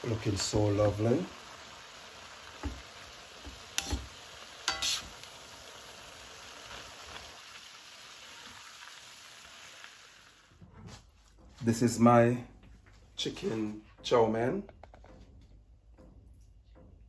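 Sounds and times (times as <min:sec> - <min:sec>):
noodles sizzling in a steel pan: 0:00.0 - 0:10.6
tongs clattering against pan: 0:03.4 - 0:05.1.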